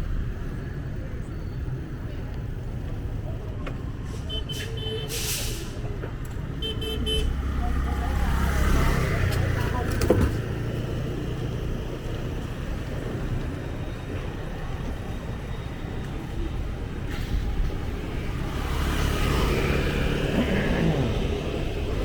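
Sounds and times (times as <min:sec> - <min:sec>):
traffic rumble: 0:00.0 - 0:22.0
motorbike and car engines passing: 0:06.4 - 0:22.0.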